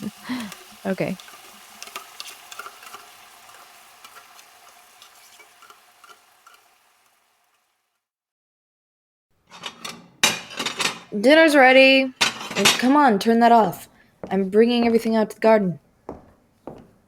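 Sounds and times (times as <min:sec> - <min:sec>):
food sizzling in a frying pan: 0:00.0 - 0:08.1.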